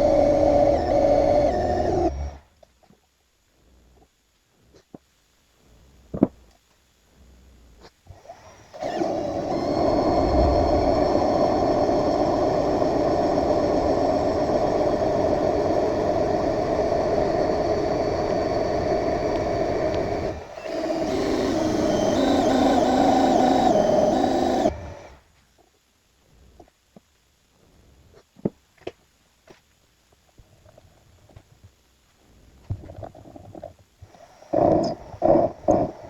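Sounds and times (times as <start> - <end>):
metal lathe running: 8.8 - 25.0.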